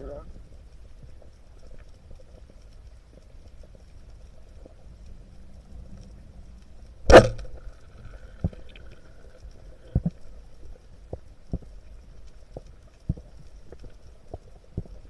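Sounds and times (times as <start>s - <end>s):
speargun firing underwater: 7.1s - 7.7s.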